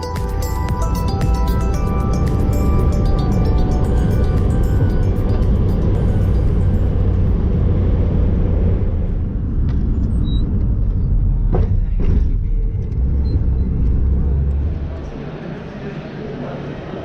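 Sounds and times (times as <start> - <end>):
road vehicle rumble: 0.0 - 17.0.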